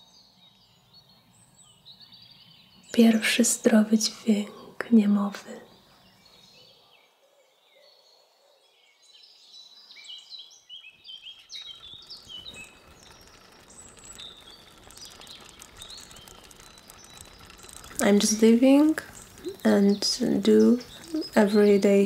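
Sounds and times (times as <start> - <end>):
birds chirping: 9.6 - 22.0
low rumbling noise: 11.1 - 22.0.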